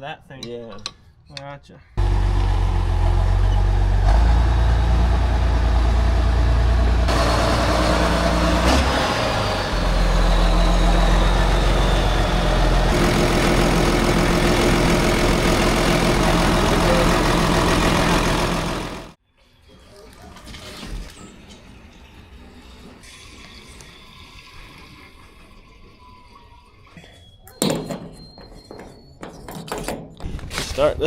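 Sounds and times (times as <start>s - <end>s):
tractor engine running: 2.0s - 19.2s.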